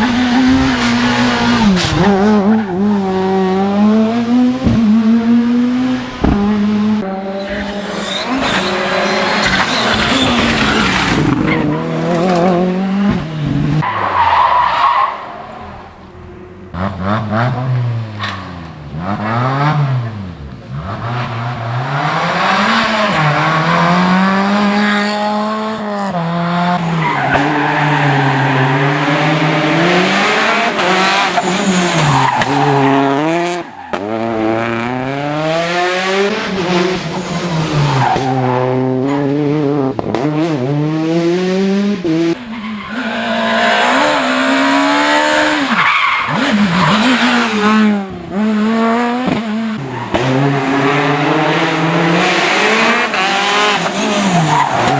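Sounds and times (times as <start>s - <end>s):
rally car engines revving: 0.0s - 54.9s
tyre squeal: 7.2s - 12.7s, 30.2s - 34.3s, 42.5s - 51.2s, 52.6s - 54.9s.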